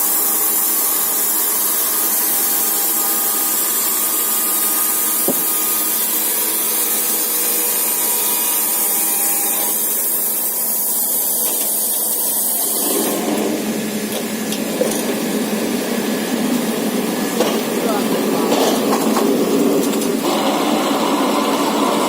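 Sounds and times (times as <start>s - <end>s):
band sawmill running: 0.0s - 22.0s.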